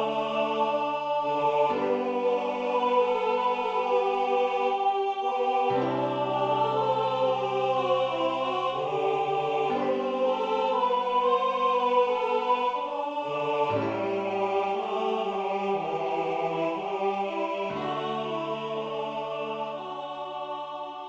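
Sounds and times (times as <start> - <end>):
choir singing sustained chords: 0.0 - 21.0.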